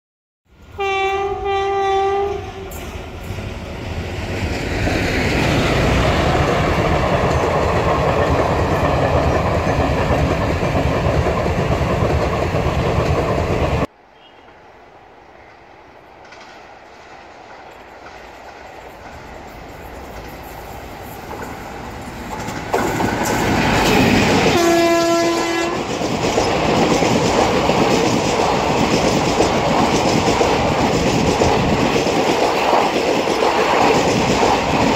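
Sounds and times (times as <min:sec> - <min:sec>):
train coaches rumbling past: 0:00.5 - 0:34.9
locomotive horn: 0:00.7 - 0:02.8, 0:24.5 - 0:25.9
wheels clicking on rail joints: 0:15.4 - 0:34.9.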